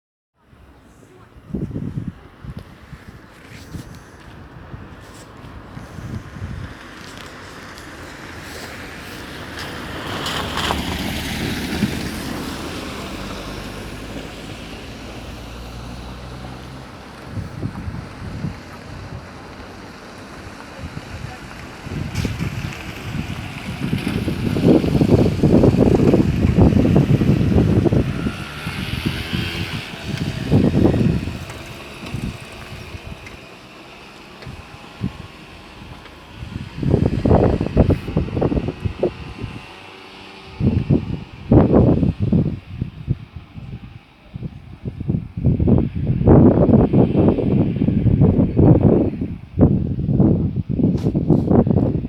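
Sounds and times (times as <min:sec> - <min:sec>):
vehicle passing on road: 0:00.5 - 0:52.0
wind buffeting microphone: 0:00.5 - 0:52.0.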